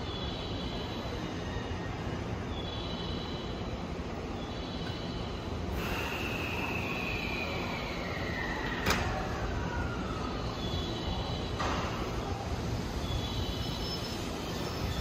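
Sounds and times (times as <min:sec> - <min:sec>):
train idling low rumble: 0:00.0 - 0:15.0
air hiss with falling whistle: 0:05.7 - 0:11.3.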